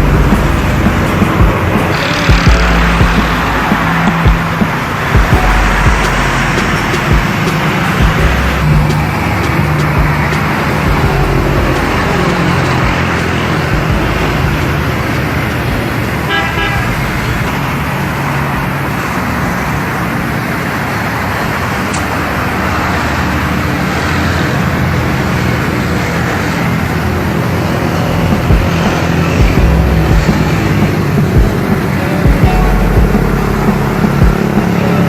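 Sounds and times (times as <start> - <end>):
road traffic: 0.0 - 35.0
car horn: 16.2 - 17.6.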